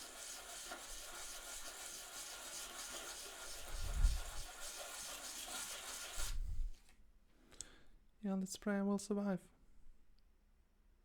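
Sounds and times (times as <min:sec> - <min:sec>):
sandpaper rubbing on wood: 0:00.0 - 0:06.4.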